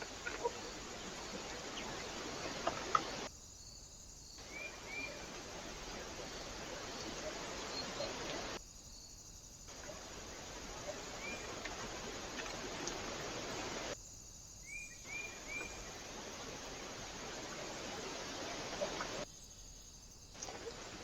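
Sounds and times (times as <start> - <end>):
microphone hiss: 0.0 - 3.3, 4.0 - 21.0
faint bird chirps: 4.4 - 8.6, 14.6 - 16.0.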